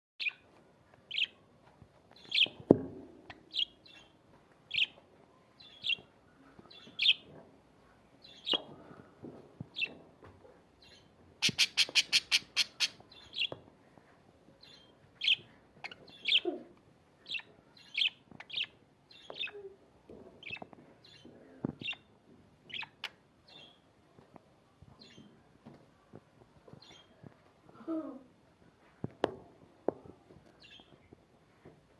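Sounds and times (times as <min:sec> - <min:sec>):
budgerigar chirping: 0:11.4 - 0:13.5.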